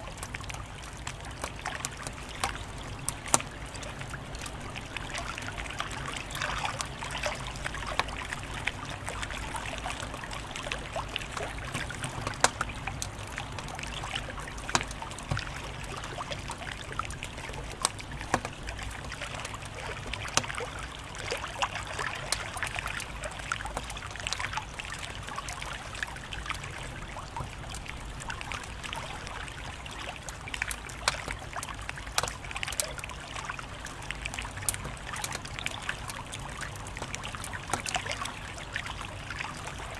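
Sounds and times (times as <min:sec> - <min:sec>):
wood fire crackling: 0:00.0 - 0:20.4, 0:33.6 - 0:39.4.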